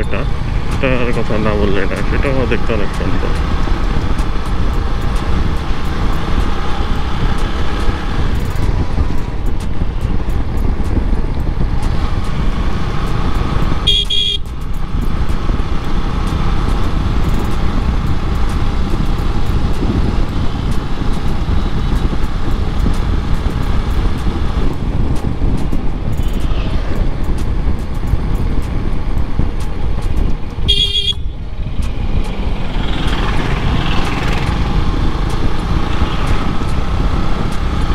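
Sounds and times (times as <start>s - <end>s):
motorcycle engine and road noise: 0.0s - 37.9s
vehicle horn honking: 13.8s - 14.4s, 30.7s - 31.4s.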